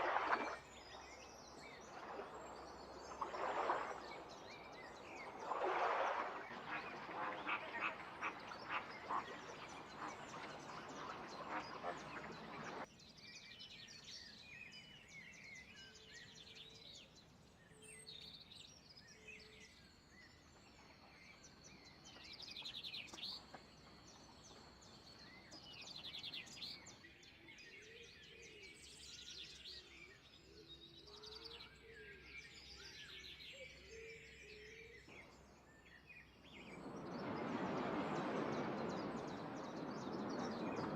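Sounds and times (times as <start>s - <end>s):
birds calling: 0.0s - 12.9s, 36.6s - 40.9s.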